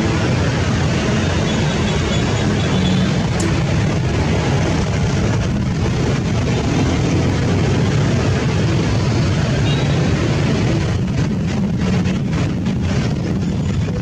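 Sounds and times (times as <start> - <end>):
turboprop engines droning: 0.0 - 14.0.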